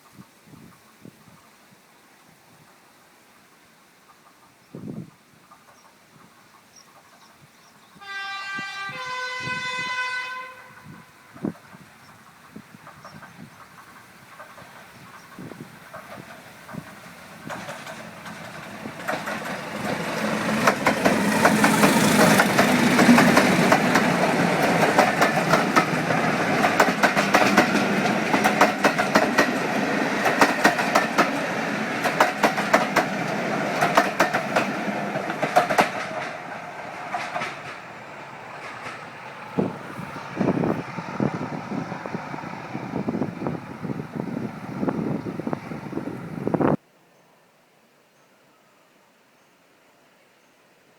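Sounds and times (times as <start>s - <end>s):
train wheels clicking over rail joints: 11.4s - 43.9s.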